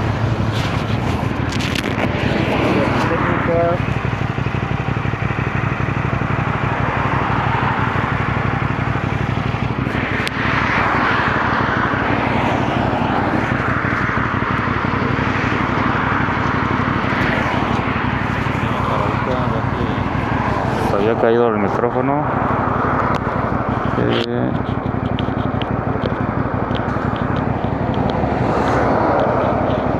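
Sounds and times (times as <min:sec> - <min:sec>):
wind rush: 0:00.0 - 0:03.6, 0:09.0 - 0:20.9, 0:27.5 - 0:29.9
motorcycle engine drone: 0:00.0 - 0:29.9.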